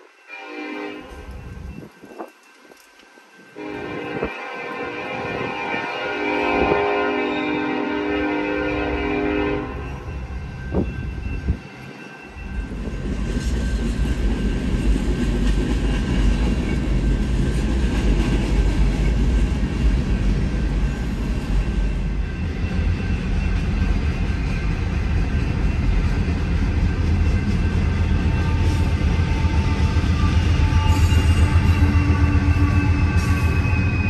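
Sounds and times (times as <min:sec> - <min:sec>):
train rumbling past: 0:00.0 - 0:34.0
locomotive horn chord: 0:00.2 - 0:01.3, 0:03.6 - 0:10.2.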